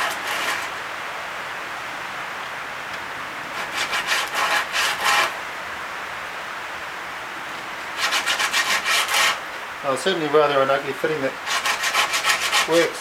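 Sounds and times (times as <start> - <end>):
sandpaper rubbing on wood: 0.0 - 0.7, 3.6 - 5.4, 8.0 - 9.4, 11.4 - 13.0.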